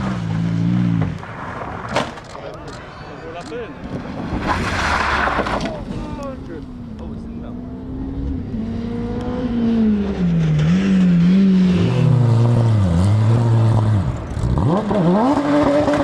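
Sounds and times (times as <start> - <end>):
rally car engine revving: 3.9 - 16.0.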